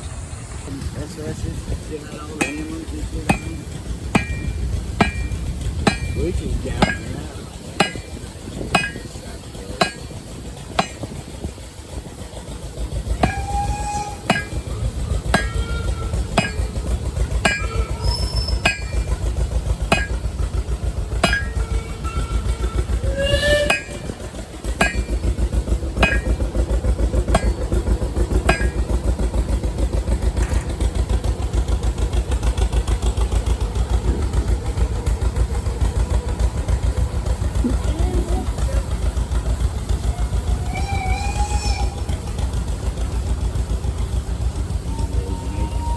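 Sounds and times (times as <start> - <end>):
engine running: 0.0 - 45.9
hammer ringing on anvil: 3.3 - 3.5, 4.2 - 5.3, 7.8 - 8.1, 8.8 - 9.0, 14.3 - 14.6, 16.4 - 16.6, 17.4 - 17.7, 18.6 - 19.0, 19.9 - 20.2, 21.2 - 21.6, 24.8 - 25.1, 26.0 - 26.4, 28.5 - 28.8.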